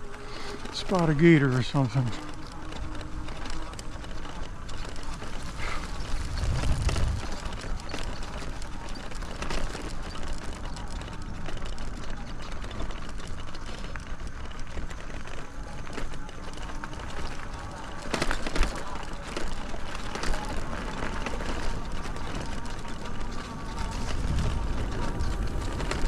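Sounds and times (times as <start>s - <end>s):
bike tyres rattling over trail: 0.0s - 26.0s
low rumble: 5.8s - 7.8s.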